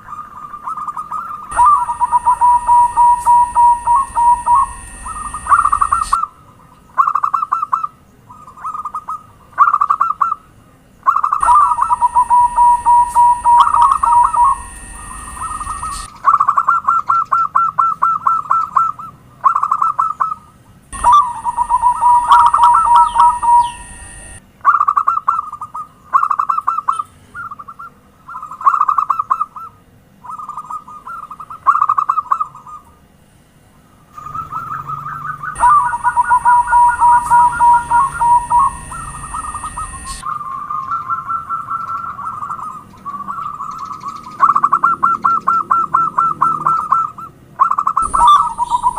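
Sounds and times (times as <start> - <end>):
steady high whine: 0.0 - 7.0, 10.5 - 16.3, 20.6 - 24.6, 33.0 - 48.9
dove cooing trills: 0.0 - 33.0, 33.9 - 48.9.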